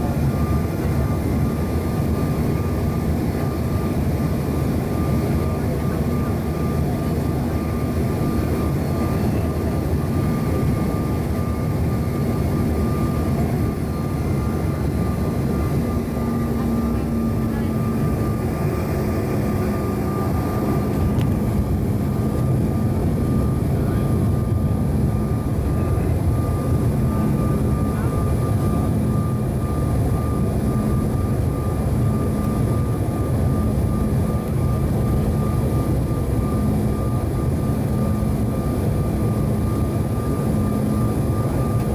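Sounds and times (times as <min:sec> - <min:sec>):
jet engine hum: 0:00.0 - 0:41.9
thin steady whine: 0:00.0 - 0:41.9.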